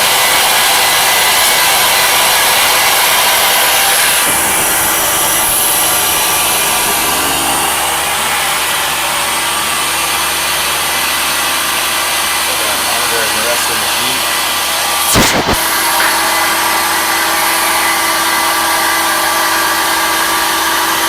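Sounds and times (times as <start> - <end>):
milling machine whirring: 0.0 - 21.0.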